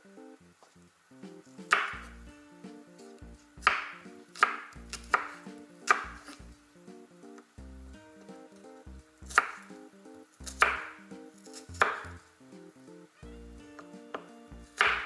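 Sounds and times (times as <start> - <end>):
knife striking cutting board: 1.6 - 2.2, 3.6 - 6.4, 9.2 - 9.8, 10.4 - 12.2, 13.8 - 15.0.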